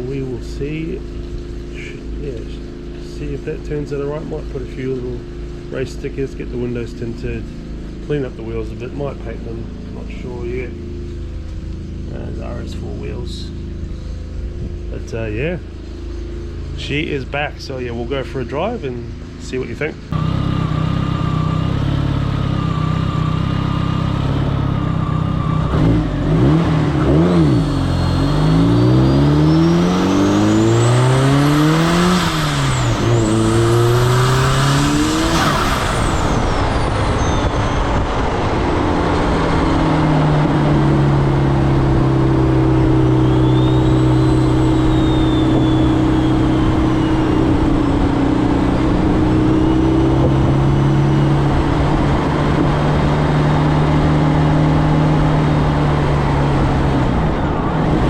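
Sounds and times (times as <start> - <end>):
car engine revving through gears: 20.1 - 58.0
turbo whistle: 27.2 - 31.5, 42.9 - 48.7.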